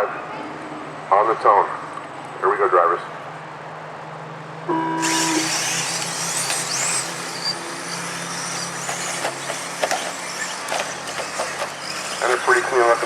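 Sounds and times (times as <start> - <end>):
race start tone beeping: 4.7 - 8.0
high-pitched motor whines: 4.7 - 13.0
rc trucks motors and tyres hissing: 5.0 - 13.0.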